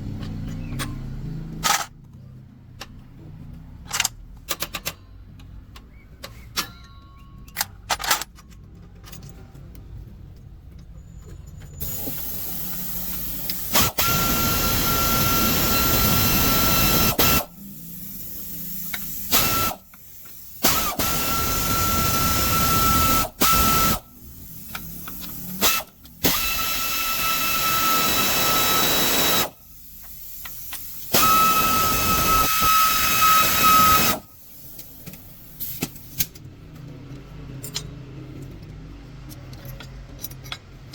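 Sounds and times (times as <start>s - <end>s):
compressed air hissing: 11.8s - 36.3s.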